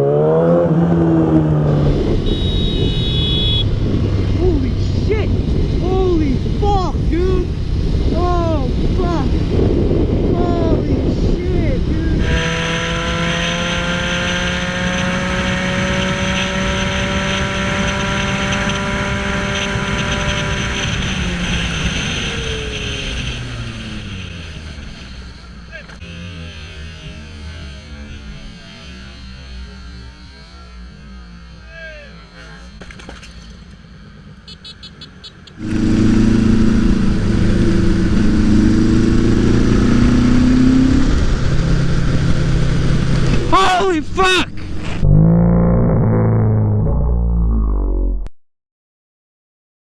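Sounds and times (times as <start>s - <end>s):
rushing wind noise: 0.8s - 24.2s, 35.6s - 45.1s
motorcycle engine running: 0.9s - 43.8s.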